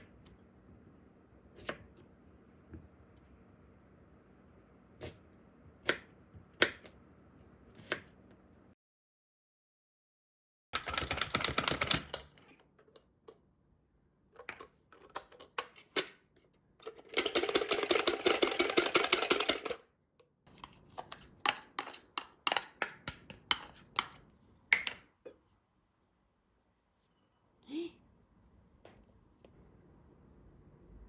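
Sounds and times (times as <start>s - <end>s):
kitchen utensils clicking and tapping: 21.0s - 25.0s.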